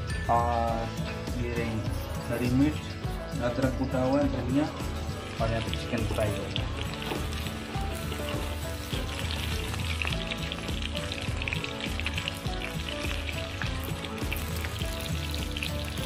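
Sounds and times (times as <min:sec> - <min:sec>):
chicken sizzling in hot oil: 0:00.7 - 0:16.0.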